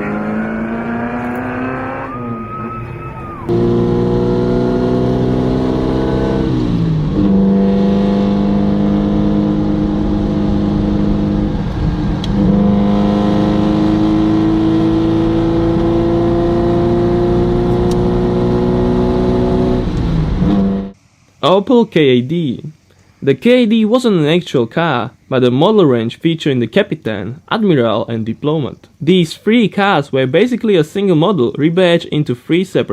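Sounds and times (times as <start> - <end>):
engine pulling under load: 0.0 - 5.5.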